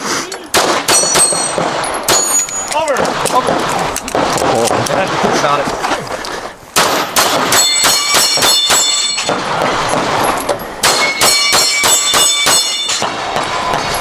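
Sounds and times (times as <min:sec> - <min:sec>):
rapid pistol shots: 0:00.5 - 0:05.3, 0:06.8 - 0:14.0
steel plate ringing clang: 0:00.9 - 0:03.0, 0:06.8 - 0:14.0.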